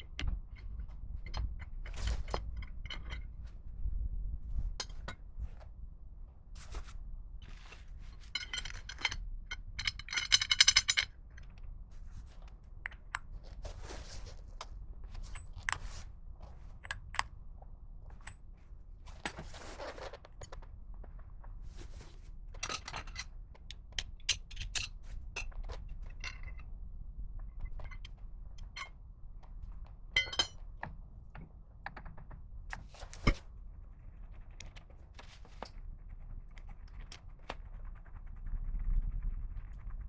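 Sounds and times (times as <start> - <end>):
metal tools clinking and rattling: 8.1 - 11.1, 30.2 - 30.6.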